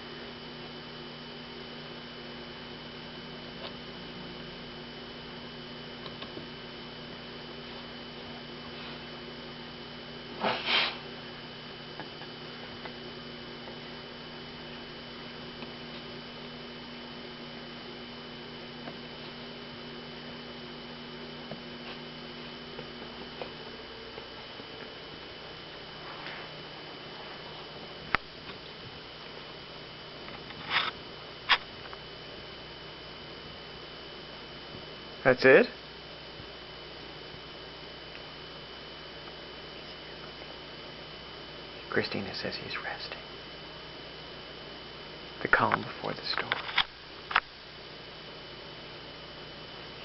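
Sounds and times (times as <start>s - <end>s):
electrical hum: 0.0s - 50.0s.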